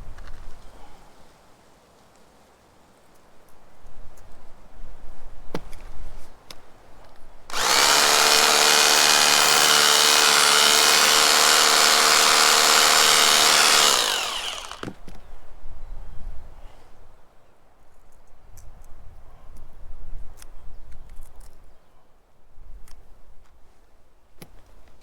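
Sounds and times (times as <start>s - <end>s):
power drill running: 7.5s - 15.0s.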